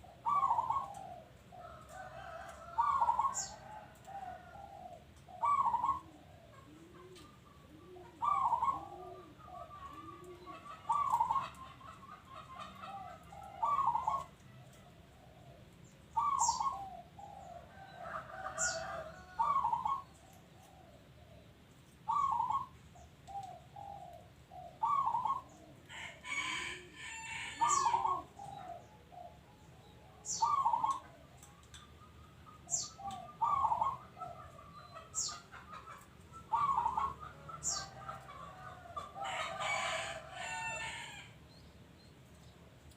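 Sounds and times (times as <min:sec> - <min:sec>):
dove cooing: 0:00.0 - 0:41.3
small bird chirping: 0:15.8 - 0:17.0, 0:29.8 - 0:38.0
rooster crowing: 0:25.9 - 0:28.2, 0:38.9 - 0:41.4.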